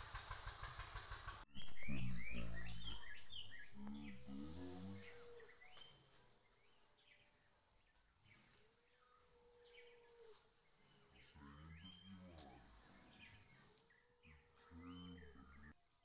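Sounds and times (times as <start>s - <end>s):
low rumble: 0.0s - 5.4s
small birds chirping: 0.2s - 16.0s
low wavering voice-like sound: 1.6s - 5.4s, 14.3s - 15.8s.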